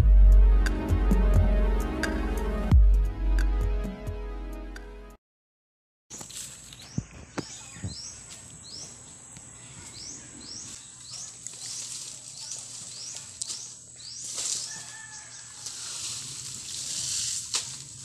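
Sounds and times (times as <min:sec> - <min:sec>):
dry palm fronds rustling: 0:06.1 - 0:07.4, 0:10.6 - 0:18.0
bird chirping: 0:06.2 - 0:15.5.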